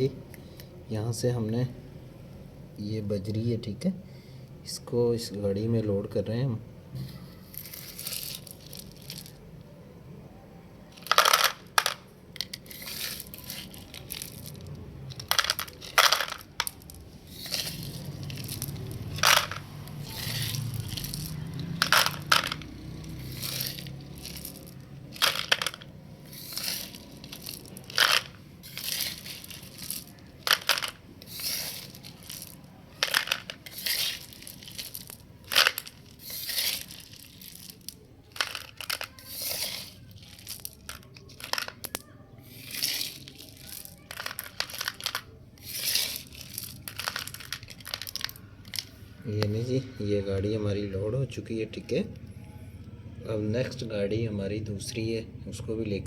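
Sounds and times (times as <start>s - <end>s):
gravel rattling into plastic toy truck: 10.9s - 49.0s.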